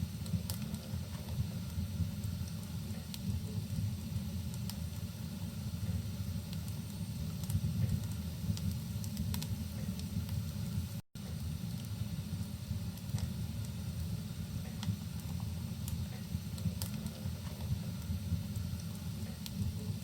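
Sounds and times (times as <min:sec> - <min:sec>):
fireplace crackling: 0:00.0 - 0:20.0.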